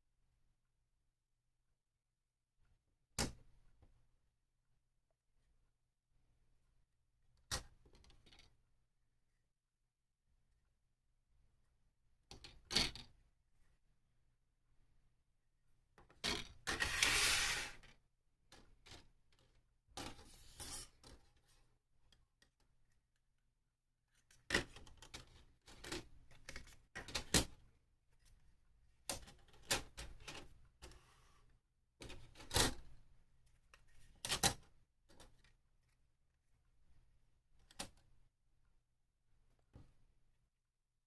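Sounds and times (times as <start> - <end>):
plastic parts scraping: 16.3 - 17.9
plastic parts clicking and tapping: 24.1 - 28.4, 32.0 - 36.0, 37.6 - 38.1.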